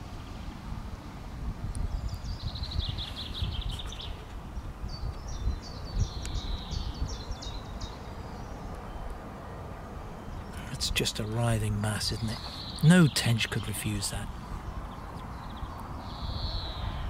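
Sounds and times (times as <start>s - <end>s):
wind rumble on microphone: 0.0s - 10.9s, 14.2s - 17.0s
small bird singing trills: 1.8s - 9.2s, 10.1s - 17.0s.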